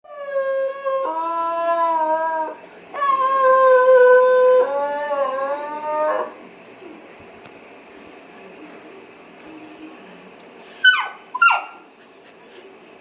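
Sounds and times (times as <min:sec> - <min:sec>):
puppy howling: 0:00.0 - 0:06.4, 0:10.8 - 0:11.8.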